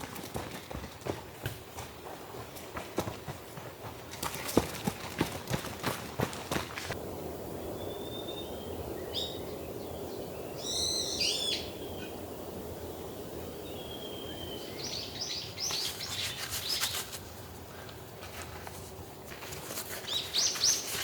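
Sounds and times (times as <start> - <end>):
steady background hiss: 6.8 - 21.0.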